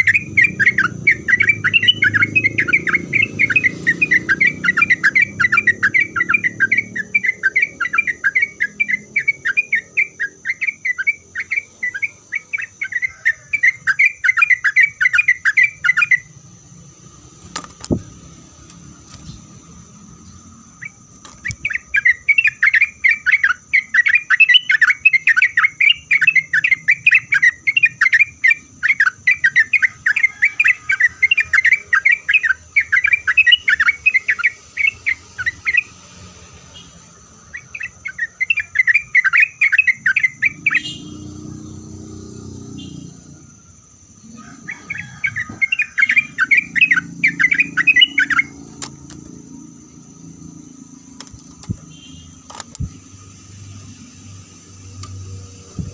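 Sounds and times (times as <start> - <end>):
bird chattering song: 0.0 - 16.8, 19.1 - 36.0, 36.7 - 54.0.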